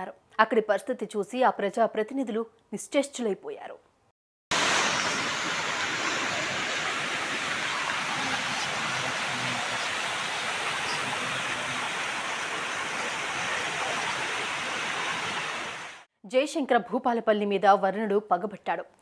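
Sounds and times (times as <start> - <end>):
floodwater rushing: 4.5 - 16.1.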